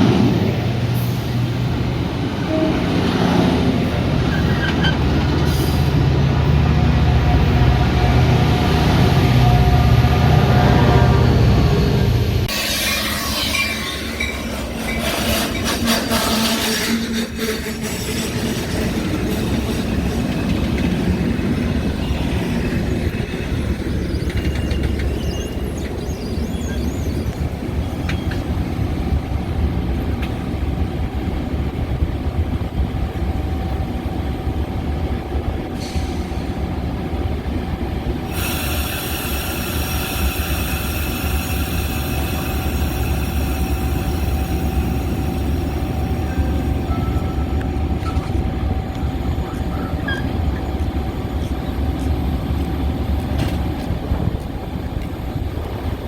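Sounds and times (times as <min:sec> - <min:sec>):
train rumbling on rails: 0:00.0 - 0:56.0
wheels squealing: 0:04.3 - 0:05.8, 0:12.5 - 0:28.8, 0:38.3 - 0:52.2.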